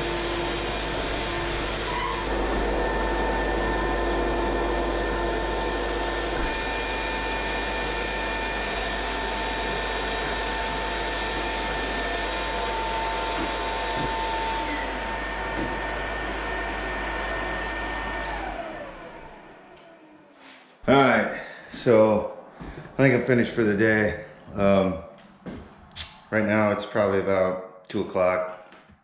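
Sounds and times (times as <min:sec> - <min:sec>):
electric sander on wood floor: 0:00.0 - 0:20.8.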